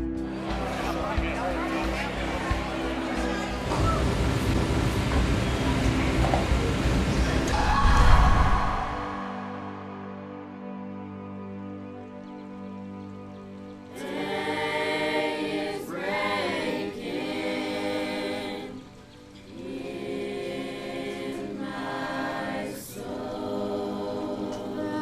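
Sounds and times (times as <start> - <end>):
choir singing: 0.0 - 11.2, 13.9 - 25.0
held chord: 9.0 - 13.4.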